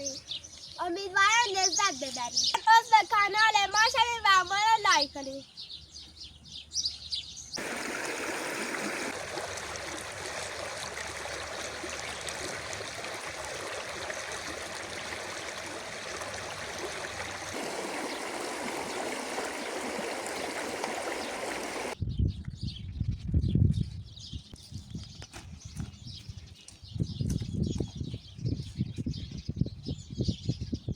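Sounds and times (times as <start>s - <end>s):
stream water rushing: 7.6s - 22.0s.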